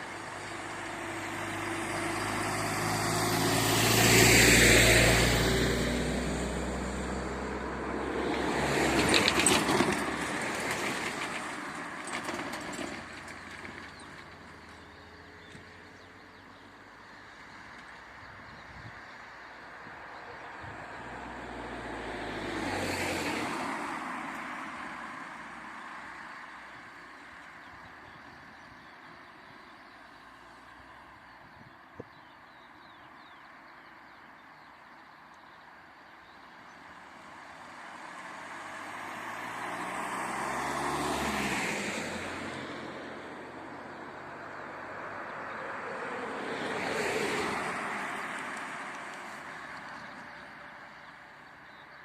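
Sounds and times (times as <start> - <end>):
vehicle passing by: 0.0 - 11.6, 20.5 - 26.2, 36.9 - 51.0.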